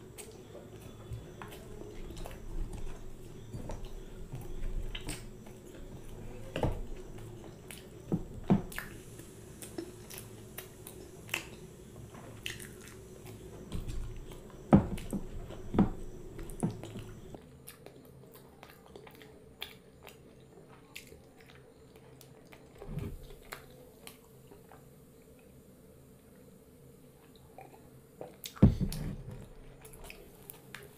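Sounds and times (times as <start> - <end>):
chewing and wet lip-smacking: 0.0 - 8.1, 12.4 - 15.7, 16.3 - 24.8.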